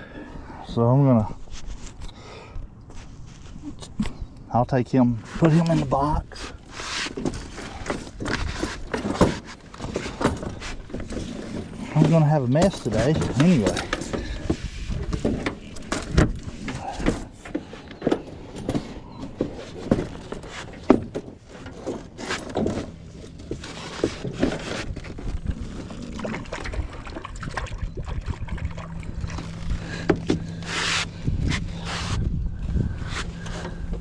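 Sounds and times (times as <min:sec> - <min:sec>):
knocks and clatter in aluminium boat: 0:05.0 - 0:34.0
steady low hum: 0:10.5 - 0:34.0.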